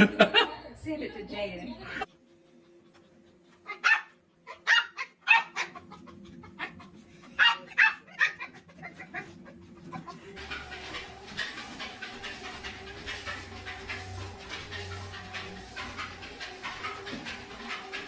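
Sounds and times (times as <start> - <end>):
dog barking: 3.7 - 5.8, 7.4 - 9.0.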